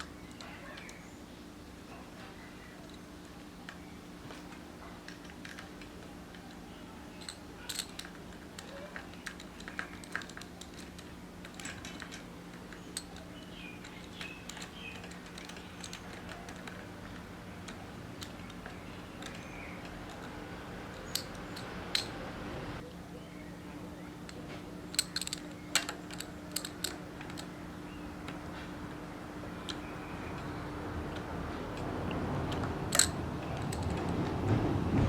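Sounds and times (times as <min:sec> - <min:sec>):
steady low hum: 0:00.0 - 0:35.0
clicks and taps of bicycle parts: 0:07.2 - 0:22.2, 0:24.3 - 0:27.6, 0:29.6 - 0:34.3.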